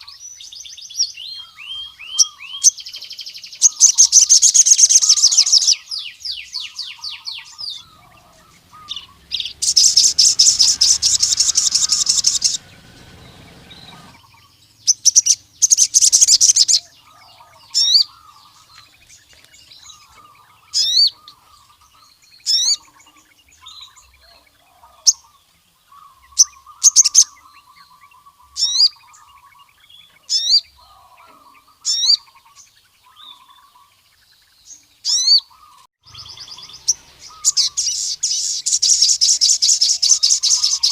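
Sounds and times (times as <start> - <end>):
sunbird singing high trills: 0.0 - 33.9, 34.7 - 40.9
faint bird twittering: 0.0 - 40.9
short sharp bird notes: 6.9 - 16.7.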